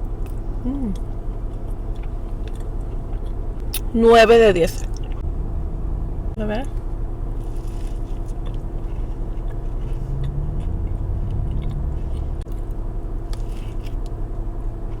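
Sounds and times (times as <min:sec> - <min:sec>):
steady low rumble: 0:00.0 - 0:15.0
cookie chewing: 0:00.2 - 0:03.4, 0:07.4 - 0:14.2.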